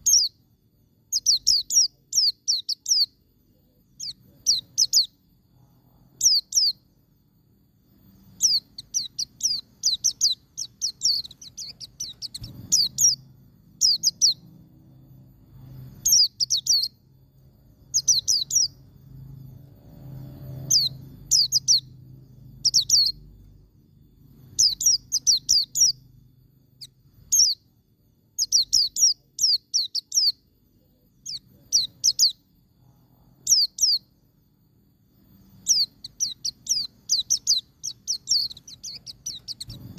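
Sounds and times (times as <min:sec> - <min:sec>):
faint low hum: 0:00.0 - 0:39.9.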